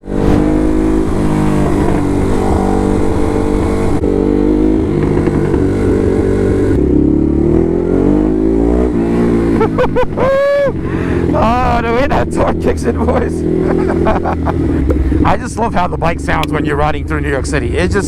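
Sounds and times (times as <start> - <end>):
motorcycle engine rumbling: 0.0 - 18.0.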